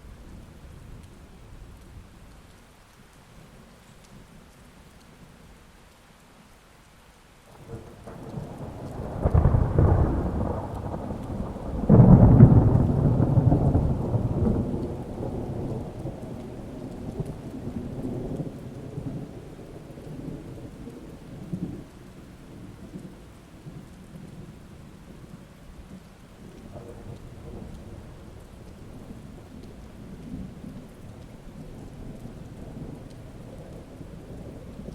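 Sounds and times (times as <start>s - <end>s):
rain falling: 0.0s - 34.9s
thunder rumbling and cracking: 7.5s - 34.9s.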